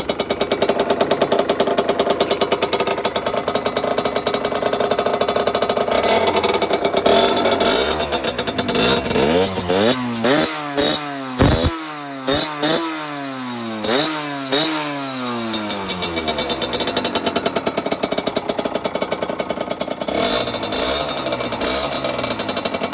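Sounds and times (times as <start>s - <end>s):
two-stroke motorcycle engine revving: 11.4s - 11.7s, 19.8s - 22.9s.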